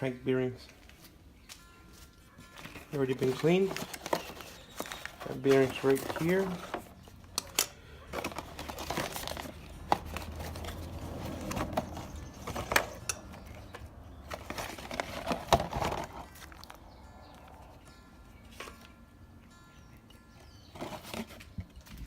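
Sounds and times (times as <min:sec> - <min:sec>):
packaging crinkling and rustling: 0:02.4 - 0:17.6, 0:20.6 - 0:22.0.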